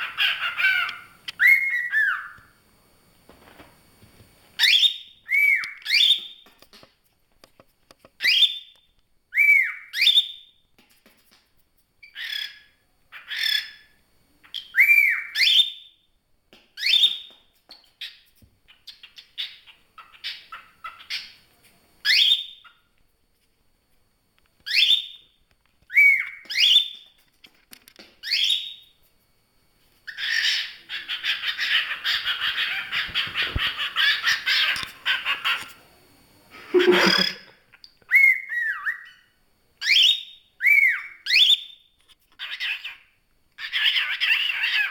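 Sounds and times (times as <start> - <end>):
bird shrill squawks: 36.8 - 37.5.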